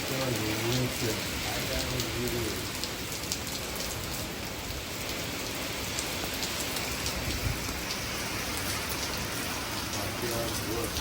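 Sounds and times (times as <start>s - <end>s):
steady rain: 0.0s - 11.0s.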